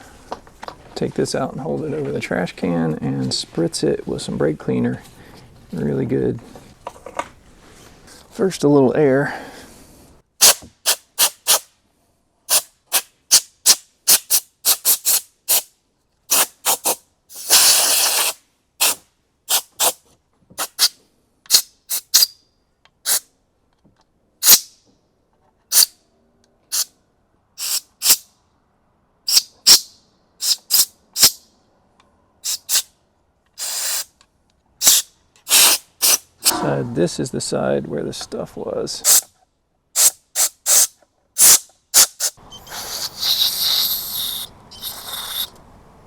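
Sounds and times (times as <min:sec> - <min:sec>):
air blow gun hissing puffs: 0:10.4 - 0:11.7, 0:12.5 - 0:15.7, 0:16.3 - 0:20.0, 0:20.6 - 0:22.3, 0:27.6 - 0:28.2, 0:30.4 - 0:31.4, 0:32.4 - 0:32.9, 0:33.6 - 0:34.1, 0:34.8 - 0:36.5, 0:39.0 - 0:39.3, 0:40.0 - 0:45.5.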